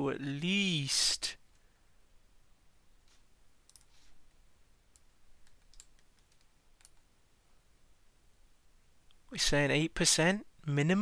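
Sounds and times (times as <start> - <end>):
computer clicks: 3.7 - 3.9, 4.9 - 7.0.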